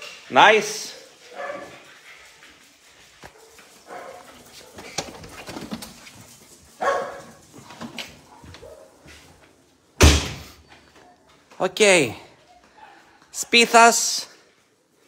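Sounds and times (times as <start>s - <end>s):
dogs barking: 1.0s - 2.0s, 3.2s - 5.0s, 6.7s - 9.3s.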